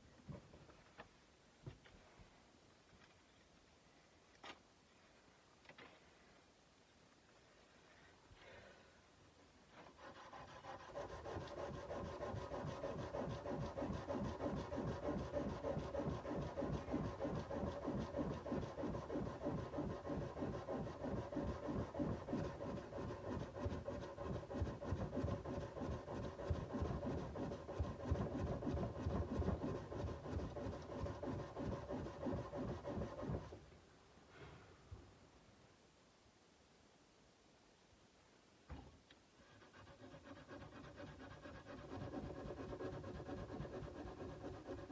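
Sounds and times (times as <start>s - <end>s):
sandpaper scratching steel blade: 9.8s - 33.6s, 39.4s - 44.9s.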